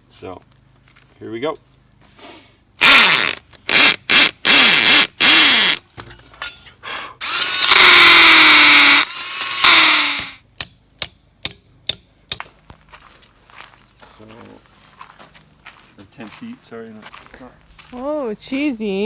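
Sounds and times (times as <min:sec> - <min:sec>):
power drill spinning: 0:02.8 - 0:05.8, 0:07.2 - 0:10.4
sharp clicks: 0:09.6 - 0:10.4.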